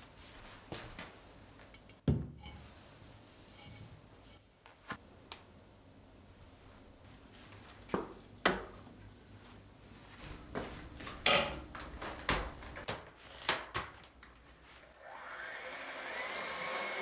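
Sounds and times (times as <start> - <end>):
household items clinking and clattering: 10.3 - 13.0
vacuum cleaner motor whine: 14.8 - 17.0.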